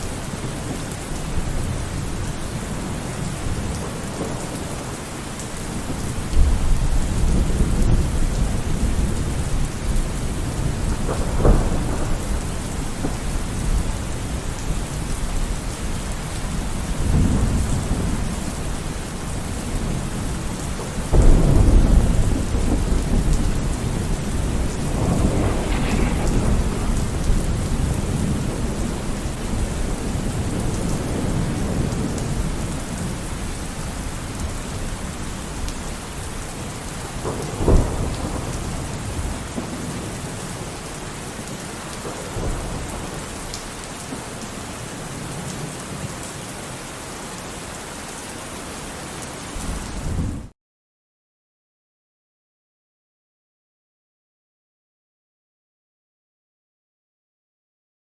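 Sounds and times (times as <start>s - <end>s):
steady rain: 0.0s - 50.6s
rolling thunder: 5.6s - 43.5s
sharp thunderclap: 5.8s - 14.4s, 20.9s - 33.0s, 37.2s - 40.4s.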